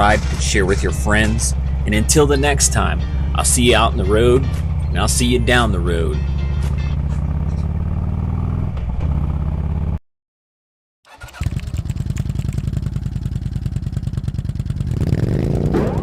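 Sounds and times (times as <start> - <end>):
motorcycle engine running: 0.0 - 10.0, 11.1 - 16.0.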